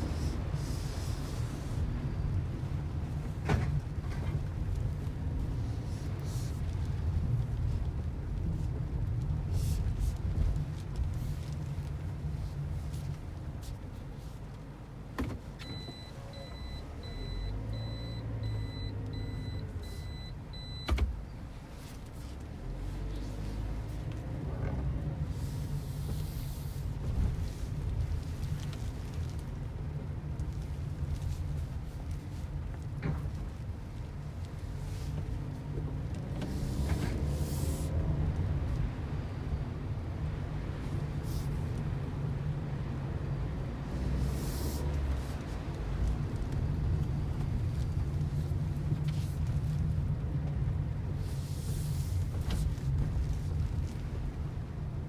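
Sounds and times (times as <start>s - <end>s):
car engine and road rumble: 0.0s - 55.0s
warning beeps: 15.7s - 21.0s.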